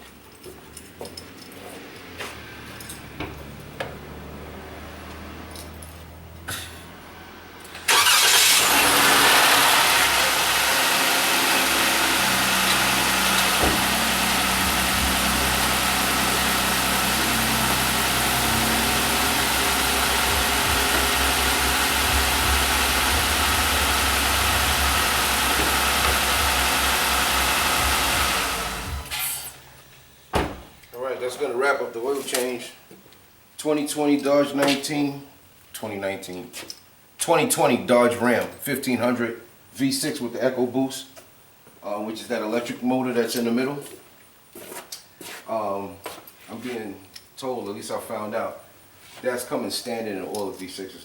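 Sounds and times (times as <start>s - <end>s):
car engine cranking and idling: 0.5s - 29.9s.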